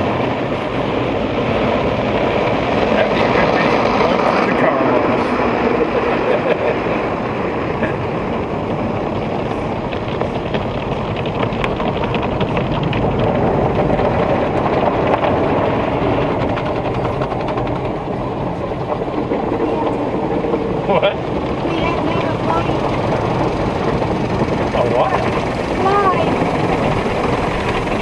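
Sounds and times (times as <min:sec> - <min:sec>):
car wash water spray and machinery: 0:00.0 - 0:28.0.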